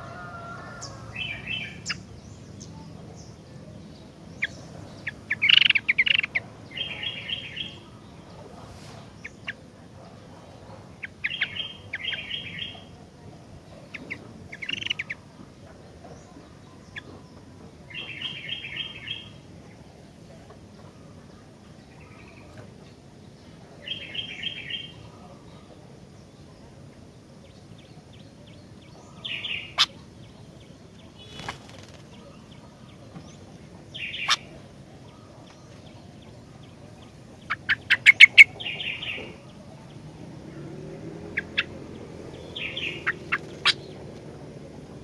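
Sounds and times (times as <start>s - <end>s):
bird chirping short phrases: 40.9s - 44.1s.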